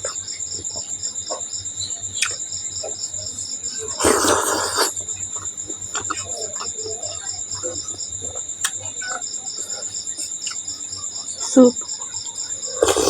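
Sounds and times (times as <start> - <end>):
insects chirping: 0.0 - 13.0
person chewing food: 3.8 - 6.7, 12.7 - 13.0.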